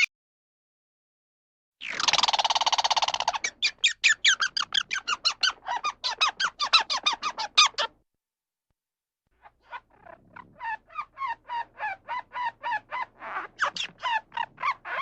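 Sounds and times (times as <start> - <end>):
animal squeaky chirps: 1.8 - 7.9, 9.4 - 15.0.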